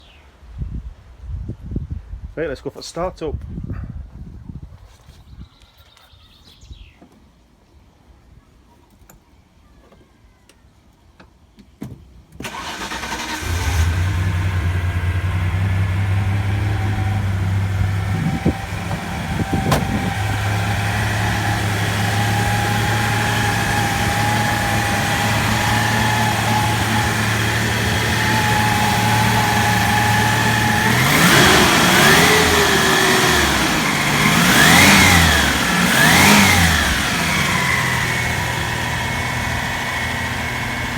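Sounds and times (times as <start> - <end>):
car engine cranking: 12.4 - 40.9
car engine idling: 12.4 - 40.9
car engine revving: 12.4 - 40.9
turbo whine: 13.6 - 40.9.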